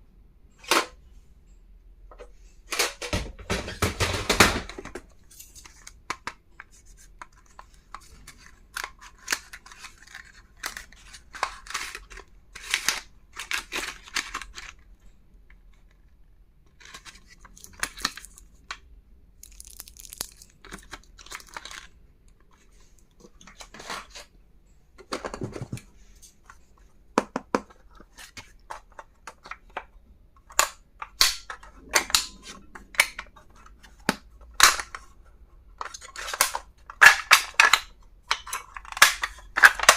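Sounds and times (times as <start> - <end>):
clicks and taps of small items: 16.8 - 22.4.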